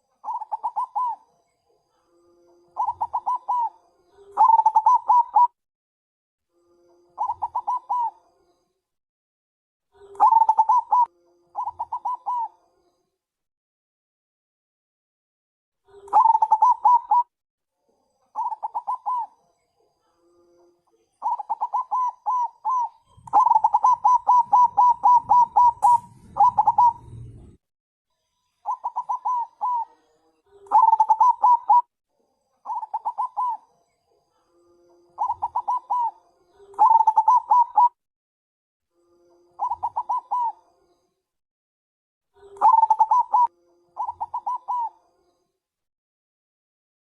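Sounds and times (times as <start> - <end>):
dove cooing: 0.2 - 1.3, 2.8 - 5.6, 7.2 - 8.2, 10.0 - 12.6, 15.9 - 17.3, 18.4 - 19.4, 21.2 - 27.6, 28.7 - 30.0, 30.6 - 31.9, 32.6 - 33.6, 35.2 - 38.0, 39.6 - 40.6, 42.4 - 45.0
low rumble: 25.8 - 27.6.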